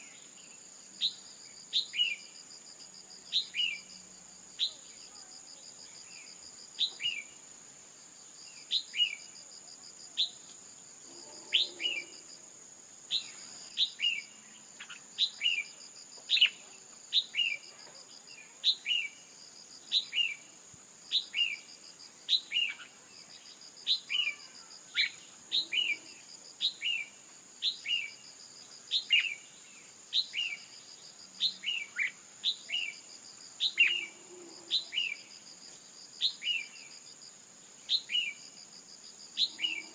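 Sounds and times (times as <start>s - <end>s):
high insect drone: 0.0s - 39.9s
bird chirping: 11.2s - 12.2s, 33.6s - 35.3s.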